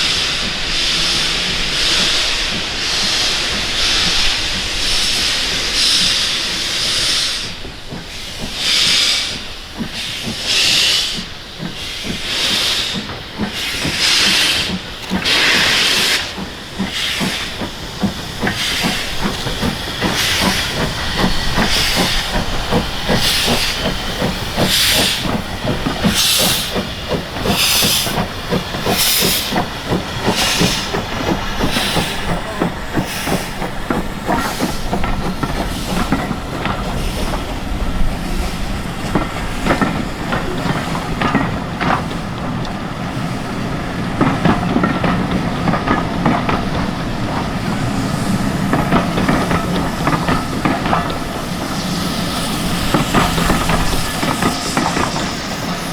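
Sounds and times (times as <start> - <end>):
steam hiss: 0.0 - 55.9
steam locomotive exhaust beats: 0.0 - 55.9
train rolling rumble: 0.0 - 55.9
wheels clicking on rail: 0.0 - 55.9.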